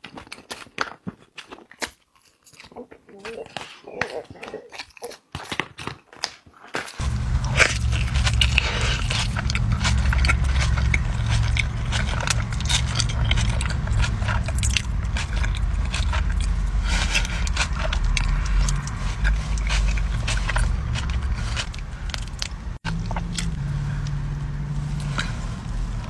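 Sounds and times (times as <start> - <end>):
crunchy bites and wet chewing: 7.0 - 26.0
loud low hum: 7.0 - 26.0.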